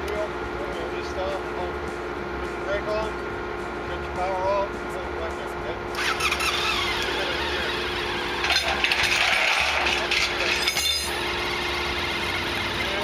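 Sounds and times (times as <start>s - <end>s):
engine idling: 0.0s - 13.0s
rattling scraping mechanical noise: 5.9s - 13.0s.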